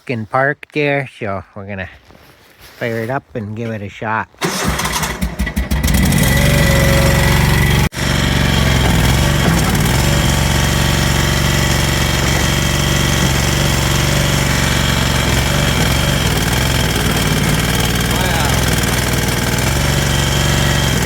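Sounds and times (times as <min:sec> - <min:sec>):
mini dozer engine running: 0:04.4 - 0:21.0.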